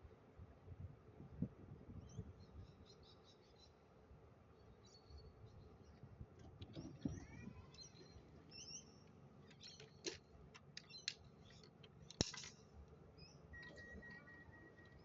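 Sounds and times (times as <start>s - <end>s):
faint bird chirps: 6.8s - 10.0s, 13.2s - 15.0s.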